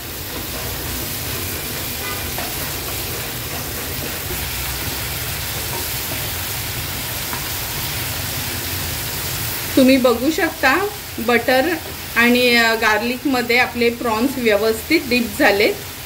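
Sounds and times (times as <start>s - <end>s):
prawns sizzling in a pan: 0.0s - 16.0s.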